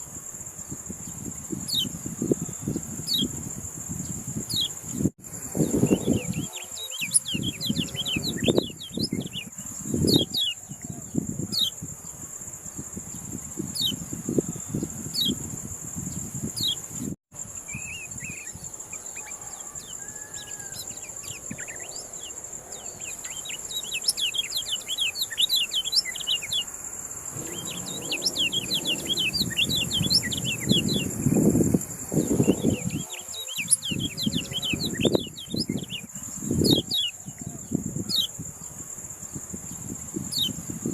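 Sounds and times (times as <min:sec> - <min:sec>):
low rumbling bursts: 0:27.2 - 0:32.9
small bird twittering: 0:27.3 - 0:31.4
high-pitched whine: 0:27.3 - 0:32.9.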